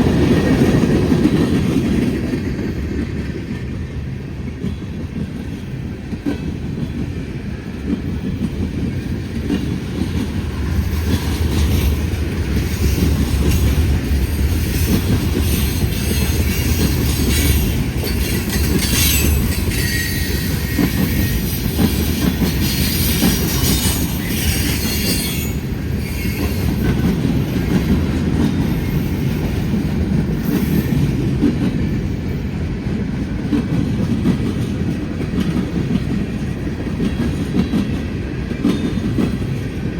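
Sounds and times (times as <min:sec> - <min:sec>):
freight train rumbling past: 0:00.0 - 0:39.9
train wheels squealing: 0:10.6 - 0:31.2.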